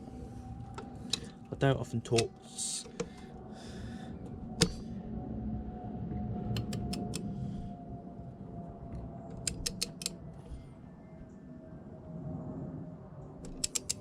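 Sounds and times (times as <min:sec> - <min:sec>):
torque wrench ratchet clicking: 0:13.5 - 0:14.0.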